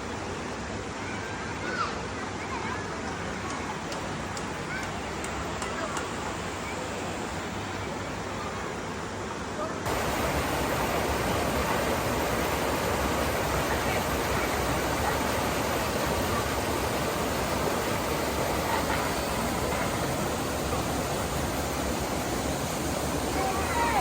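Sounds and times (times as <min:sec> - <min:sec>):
waterfall rushing: 0:09.9 - 0:24.0.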